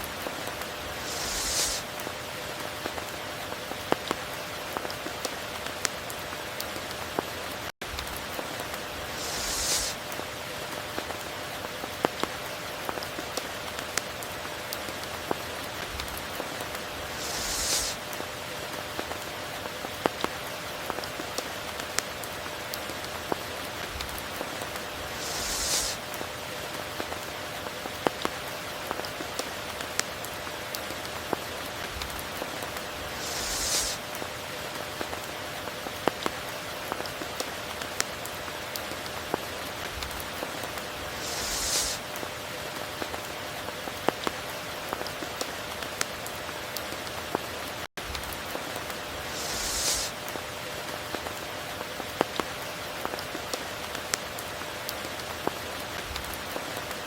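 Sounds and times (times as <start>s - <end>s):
steady rain falling: 0.0s - 57.0s
close raindrop ticks: 9.9s - 16.9s, 17.9s - 25.0s, 25.9s - 40.9s.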